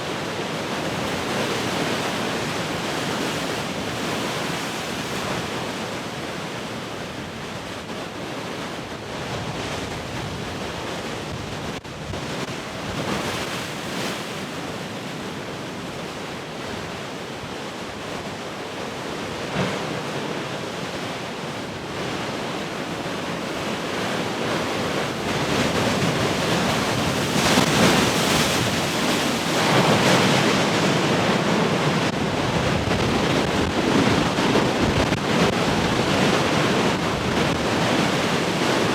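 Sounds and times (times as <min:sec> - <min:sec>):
heavy ocean surf: 0:00.0 - 0:38.9
wind buffeting microphone: 0:22.0 - 0:38.9.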